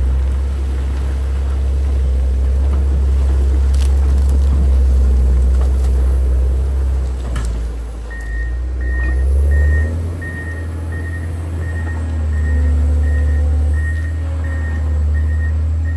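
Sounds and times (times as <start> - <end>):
diesel engine running: 0.0 - 15.9
reversing alarm beeping: 8.1 - 15.9.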